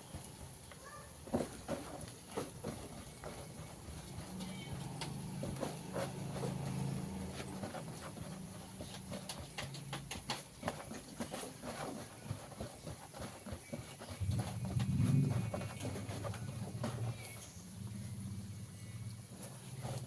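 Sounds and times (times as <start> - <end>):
steady low hum: 14.2 - 20.0.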